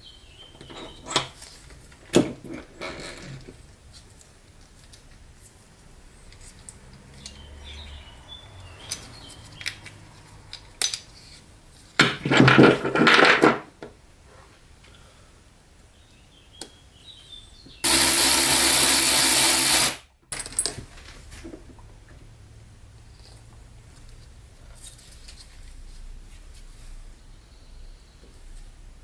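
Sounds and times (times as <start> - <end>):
parts clicking and knocking: 8.8 - 11.4, 17.8 - 20.9
motorised tool bursts: 17.8 - 20.1.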